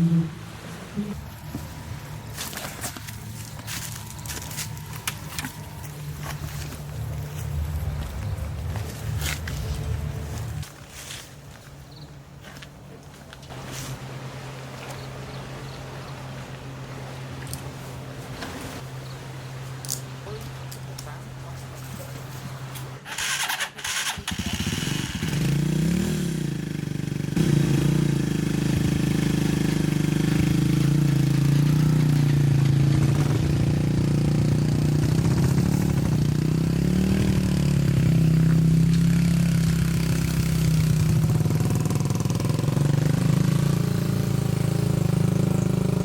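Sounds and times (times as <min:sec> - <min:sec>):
engine starting and running: 0:23.0 - 0:46.0
clicks before engine start: 0:23.1 - 0:24.9.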